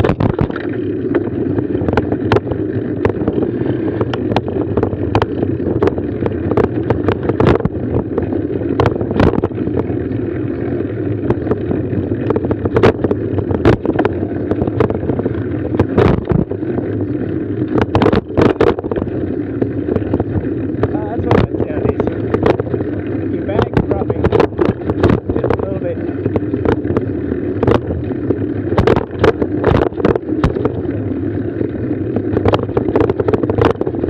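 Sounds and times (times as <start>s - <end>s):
bike rumble: 0.0s - 34.0s
wind on microphone: 0.0s - 34.0s
bike knocks and rattles: 10.6s - 16.8s, 28.4s - 31.5s.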